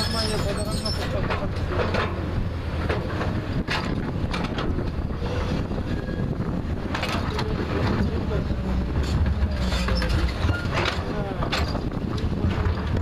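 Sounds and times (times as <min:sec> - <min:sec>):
diesel engine running under load: 0:00.0 - 0:13.0
sharp scraping knocks: 0:08.8 - 0:13.0.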